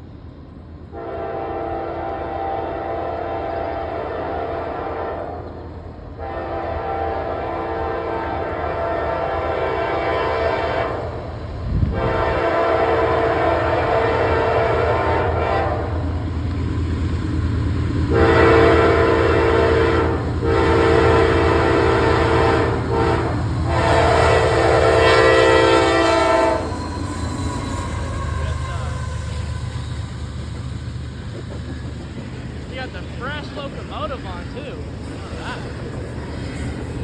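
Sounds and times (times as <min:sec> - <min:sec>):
train rumbling: 0:00.0 - 0:37.0
locomotive air horn blasts: 0:00.9 - 0:05.6, 0:06.2 - 0:16.1, 0:18.1 - 0:30.2.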